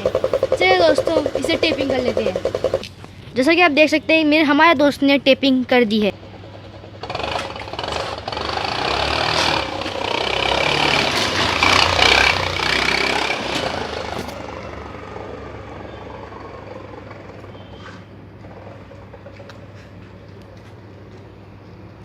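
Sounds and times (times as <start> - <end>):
scooter engine revving: 0.0 - 2.8, 6.1 - 19.4.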